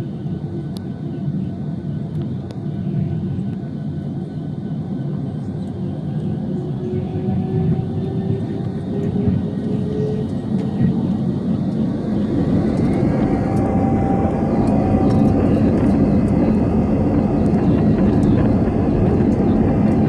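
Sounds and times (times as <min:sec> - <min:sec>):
faint engine whine: 0:00.0 - 0:20.0
jet airliner engines rumbling: 0:00.0 - 0:20.0.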